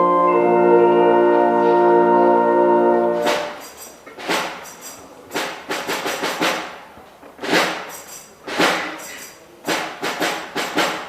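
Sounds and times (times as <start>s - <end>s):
percussion strikes with jingling: 3.2s - 11.0s.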